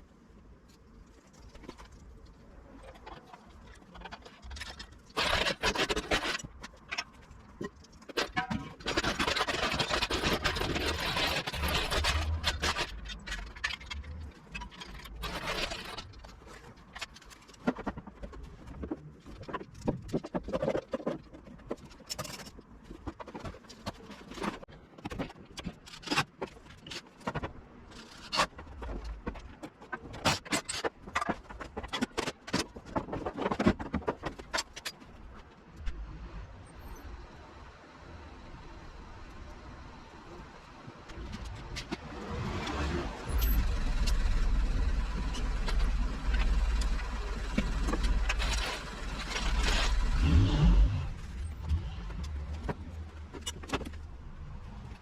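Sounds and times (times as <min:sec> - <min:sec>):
loud scraping: 0:08.9 - 0:16.3, 0:42.0 - 0:54.0.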